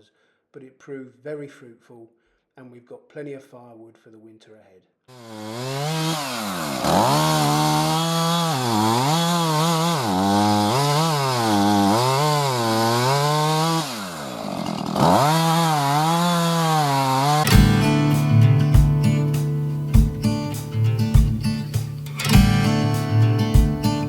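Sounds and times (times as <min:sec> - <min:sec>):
chainsaw cutting firewood: 0:05.1 - 0:24.0.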